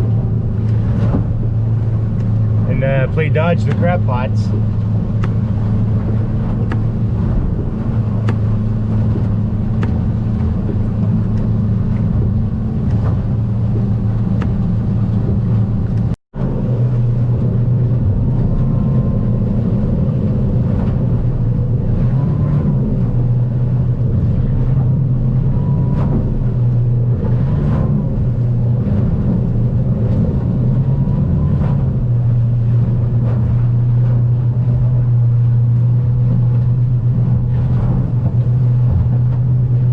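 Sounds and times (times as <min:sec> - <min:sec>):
outboard motor running: 0:00.0 - 0:39.9
faint knocks of boat hull: 0:00.6 - 0:02.5, 0:04.7 - 0:16.1, 0:36.2 - 0:39.9.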